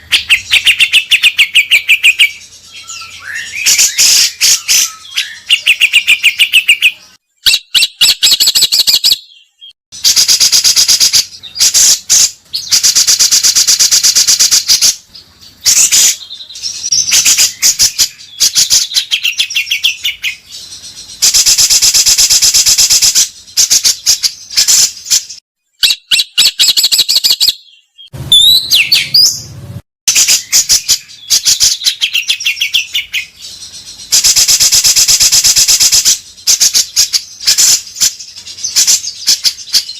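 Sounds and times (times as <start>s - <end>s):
rising whistled bird notes: 0.0s - 10.2s, 25.8s - 29.4s.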